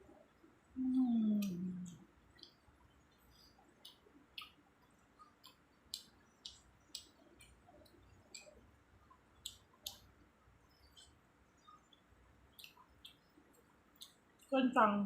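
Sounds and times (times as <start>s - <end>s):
wet mouth chewing smacks: 10.9s - 14.5s.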